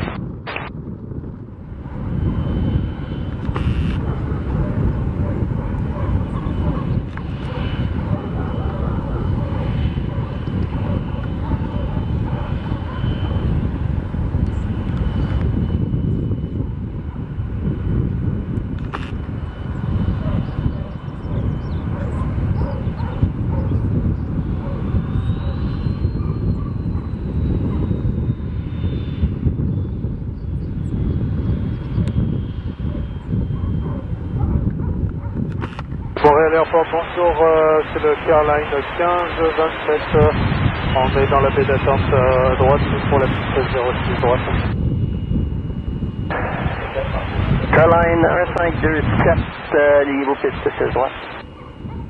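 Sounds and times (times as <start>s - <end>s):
high engine whine: 0.0s - 52.0s
jet engines rumbling: 0.0s - 52.0s
wind buffeting microphone: 0.0s - 52.0s.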